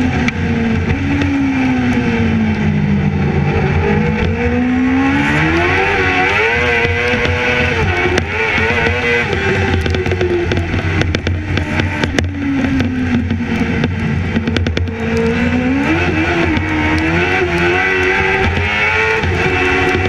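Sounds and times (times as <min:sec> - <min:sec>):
racing engine revving: 0:00.0 - 0:20.0
engine popping: 0:05.4 - 0:20.0.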